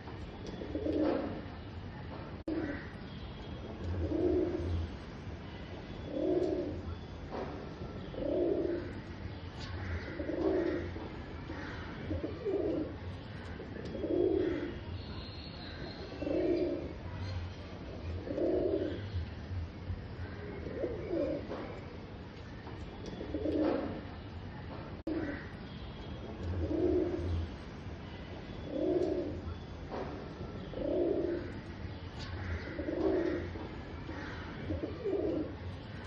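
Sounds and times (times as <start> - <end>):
pigeon cooing: 0.4 - 1.4, 4.0 - 4.8, 6.1 - 6.8, 8.1 - 9.0, 10.1 - 13.0, 13.6 - 14.8, 16.1 - 17.0, 17.9 - 19.1, 20.6 - 21.8, 23.2 - 24.0, 26.6 - 27.4, 28.7 - 29.5, 30.7 - 31.6, 32.6 - 33.6, 34.6 - 35.6.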